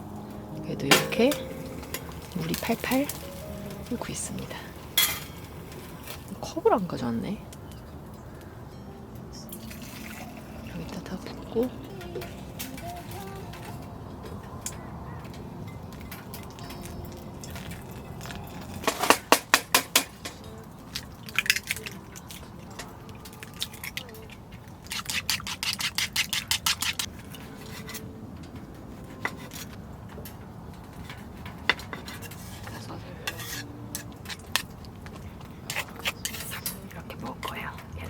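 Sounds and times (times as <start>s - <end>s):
utensil clinking against bowl: 0.6s - 7.0s.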